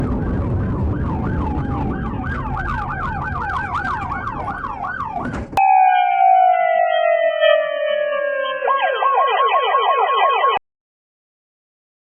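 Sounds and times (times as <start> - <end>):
road and engine noise: 0.0 - 5.6
slowly falling tone: 0.0 - 9.5
police siren yelp: 0.0 - 10.6.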